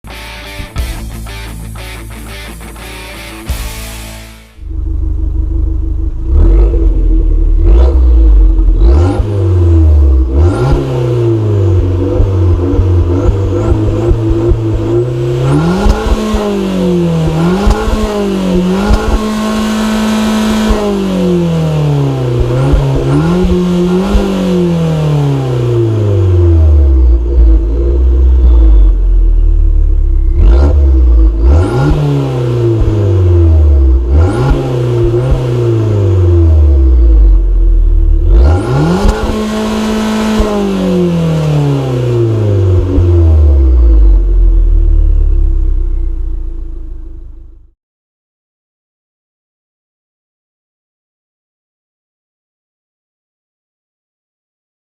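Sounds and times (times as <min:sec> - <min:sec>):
car engine revving: 0:04.6 - 0:47.8.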